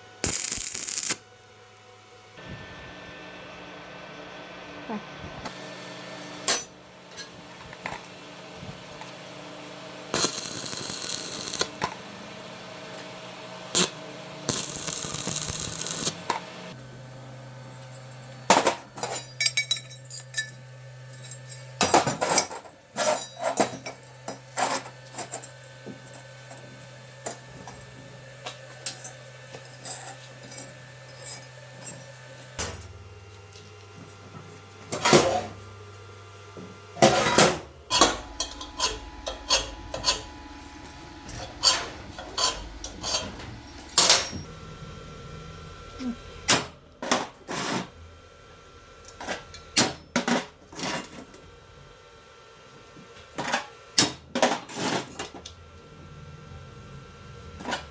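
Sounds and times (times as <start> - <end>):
metal tools clinking on workbench: 19.0 - 24.0
steady low hum: 26.1 - 52.5.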